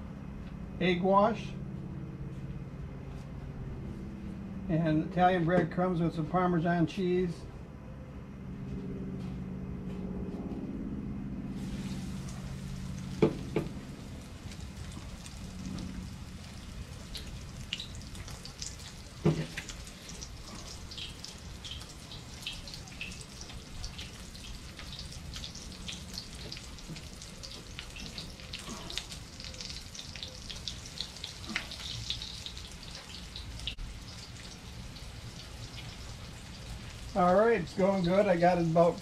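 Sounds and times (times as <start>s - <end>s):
food sizzling in oil: 11.6s - 37.3s.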